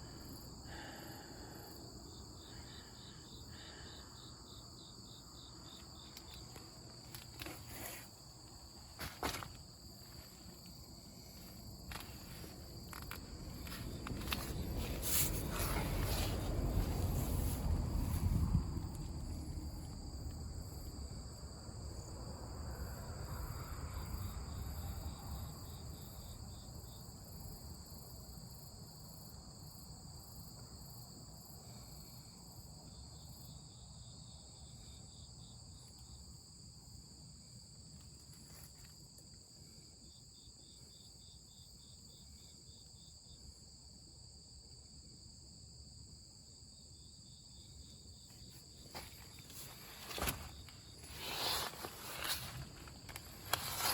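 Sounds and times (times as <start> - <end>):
crickets chirping: 0.0 - 53.9
low rumble: 13.1 - 21.1.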